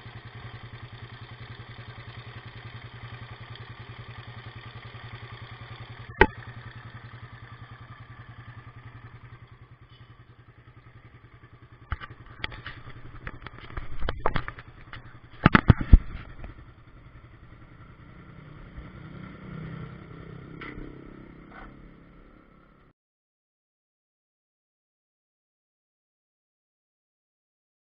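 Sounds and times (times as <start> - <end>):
motorcycle engine idling with rattle: 0.0 - 22.9
engine clacks and knocks: 20.4 - 21.5.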